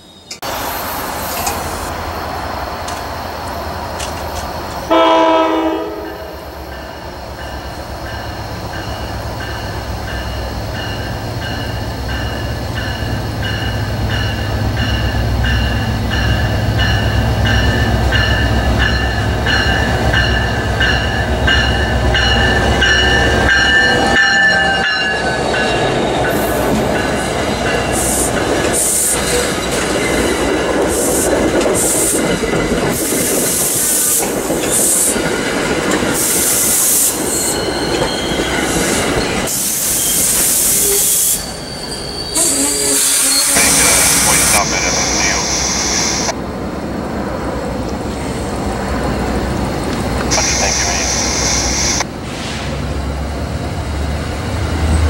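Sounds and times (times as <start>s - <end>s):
wheels clickety-clack over rail joints: 2.8s - 4.9s, 6.8s - 39.6s
locomotive horn blast: 4.9s - 6.4s, 42.4s - 45.5s.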